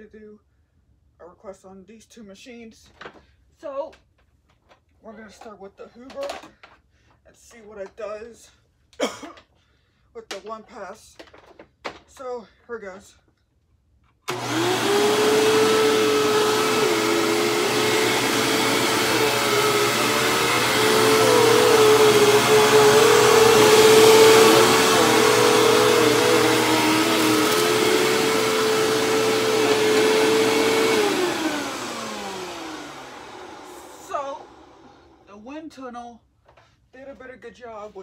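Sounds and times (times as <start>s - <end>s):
vacuum cleaner motor whine: 14.3s - 35.2s.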